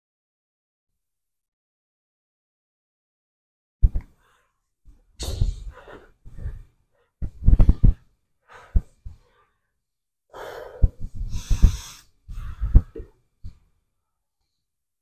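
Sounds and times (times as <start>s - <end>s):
man gasping breaths: 10.3s - 13.1s.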